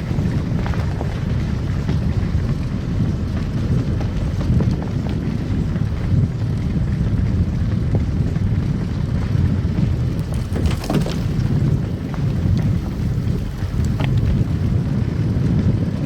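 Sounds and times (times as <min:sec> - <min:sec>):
car tyres and engine rumble: 0:00.0 - 0:16.0
crackles and clicks: 0:00.0 - 0:16.0.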